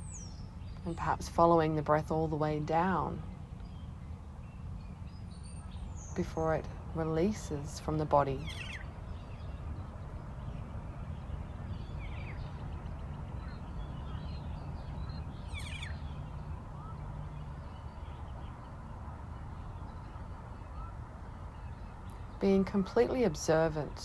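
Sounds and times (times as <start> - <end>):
low outdoor rumble: 0.0 - 24.0
birds calling: 2.6 - 18.8.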